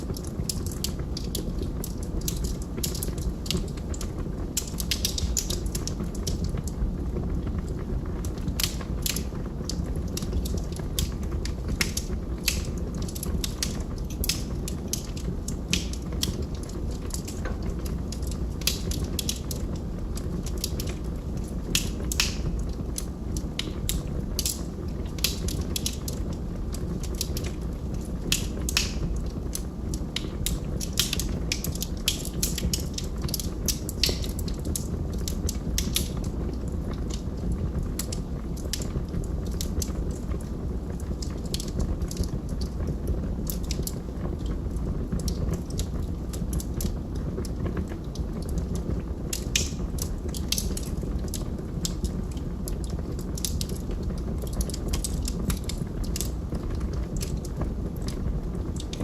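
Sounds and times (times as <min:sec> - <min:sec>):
burning wood crackling and popping: 0:00.0 - 0:59.0
low rumble of flames: 0:00.0 - 0:59.0.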